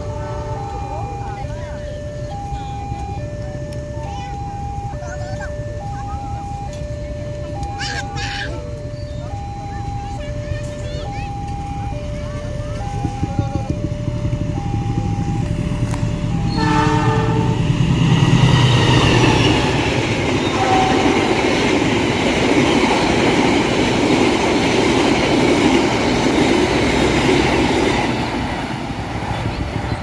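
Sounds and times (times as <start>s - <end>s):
train passing on rails: 0.0s - 30.0s
train horn chord: 16.3s - 17.9s, 20.4s - 21.7s.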